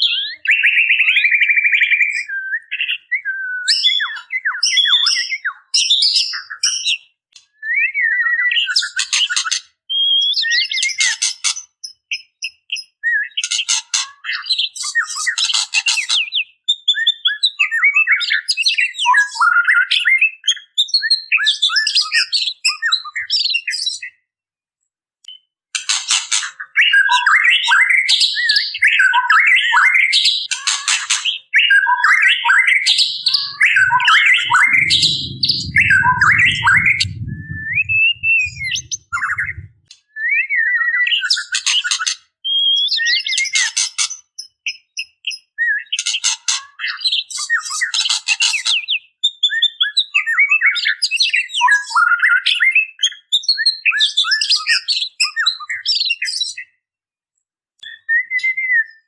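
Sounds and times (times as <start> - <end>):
bird chirps and whistles: 31.6 - 41.3, 57.8 - 59.0
low rumble: 33.2 - 39.8.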